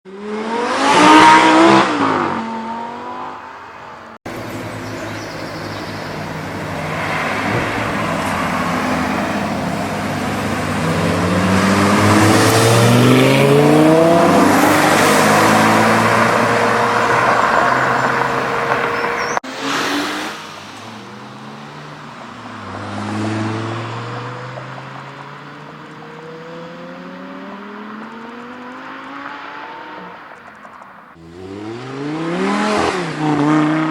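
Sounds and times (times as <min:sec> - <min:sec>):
car engine accelerating hard: 0:00.1 - 0:03.4, 0:04.2 - 0:30.2, 0:31.2 - 0:33.9.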